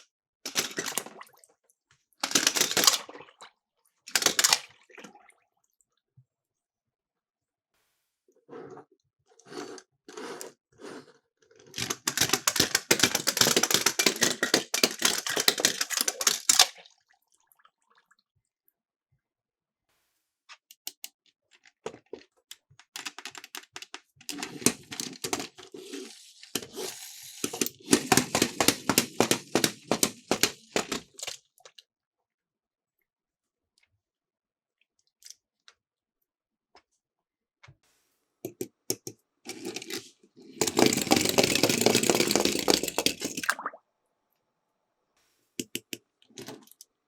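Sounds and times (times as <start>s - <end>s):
toy cars rattling down a slope: 0.5s - 1.1s, 2.2s - 3.0s, 4.1s - 4.6s, 11.6s - 16.8s, 23.0s - 31.4s, 39.5s - 43.4s.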